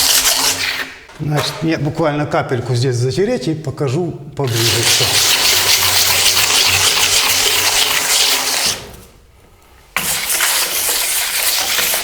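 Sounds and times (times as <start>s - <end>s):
float scraping wet plaster: 0.0s - 2.0s, 4.4s - 9.3s, 9.9s - 12.0s.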